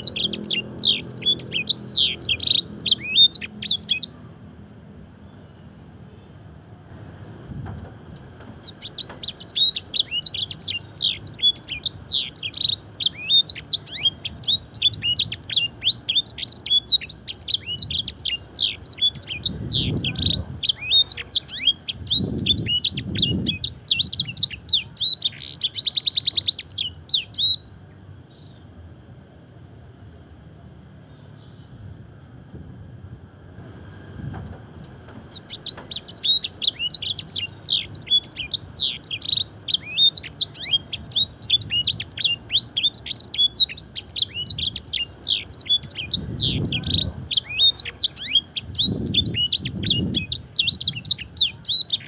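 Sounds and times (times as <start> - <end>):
canary singing: 0.0 - 4.5, 8.4 - 28.6, 35.1 - 52.0.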